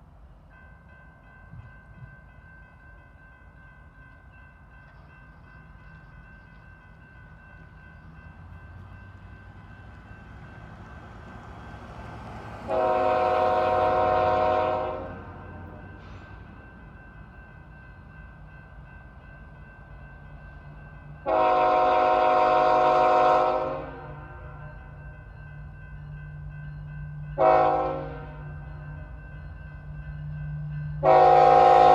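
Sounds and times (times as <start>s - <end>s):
train air horn blast: 12.6s - 15.7s, 21.2s - 24.4s, 27.4s - 28.4s, 31.0s - 31.9s.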